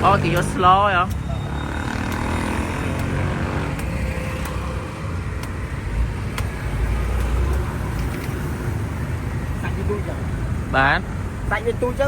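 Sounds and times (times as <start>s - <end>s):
motorcycle engine: 0.0s - 5.2s
road traffic: 0.0s - 12.0s.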